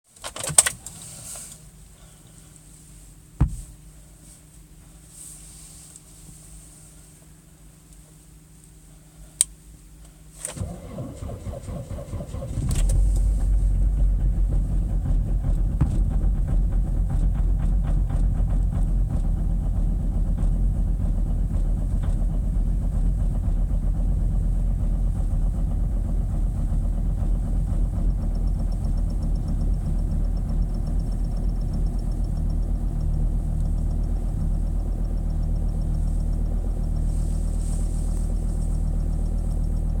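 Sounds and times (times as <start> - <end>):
starter motor cranking: 10.5 - 15.7
diesel engine idling: 10.6 - 40.0.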